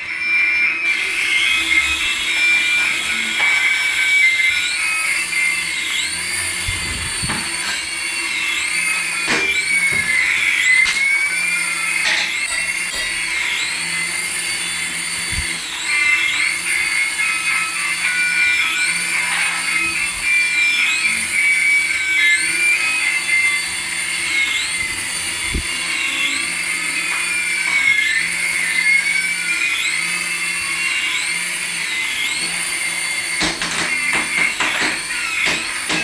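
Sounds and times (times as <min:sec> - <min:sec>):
electronic pitch sweeps: 0:00.0 - 0:36.0
high electronic warble: 0:00.0 - 0:36.0
rattle of clicks: 0:33.3 - 0:36.0.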